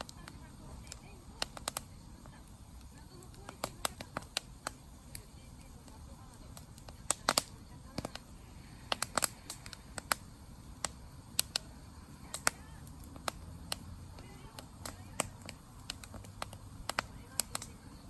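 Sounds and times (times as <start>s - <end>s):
campfire crackling and popping: 0.0s - 18.0s
low hiss of flames: 0.0s - 18.0s.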